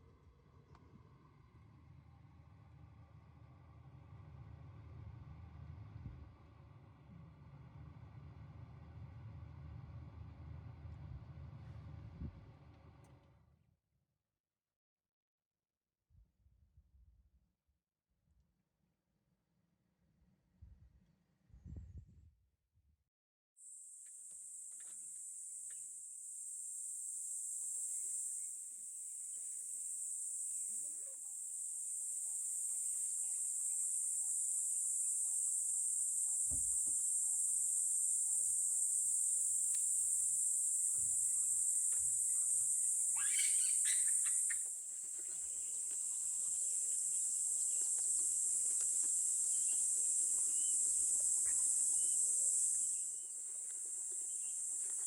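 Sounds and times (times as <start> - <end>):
brief loud insect call: 23.6 - 55.0
high-pitched insect chorus: 23.6 - 55.0.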